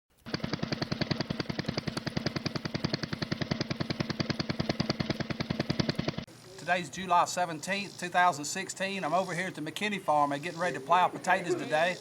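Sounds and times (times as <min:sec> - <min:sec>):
machine knocking rapidly: 0:00.2 - 0:06.3
steady low hum: 0:00.2 - 0:12.0.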